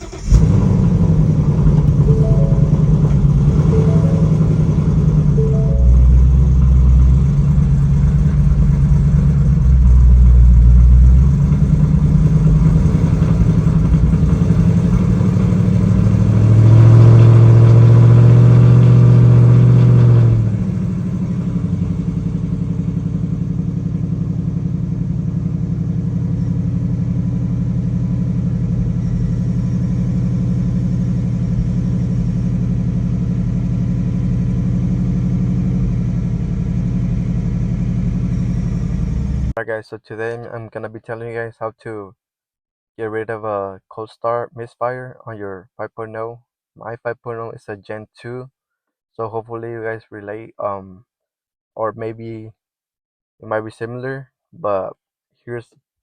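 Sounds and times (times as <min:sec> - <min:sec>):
car engine revving and idling: 0:00.0 - 0:39.6.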